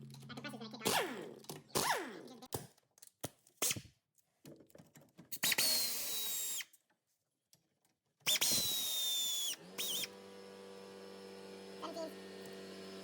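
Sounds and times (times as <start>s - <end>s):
cordless power tool whine: 8.3s - 13.0s.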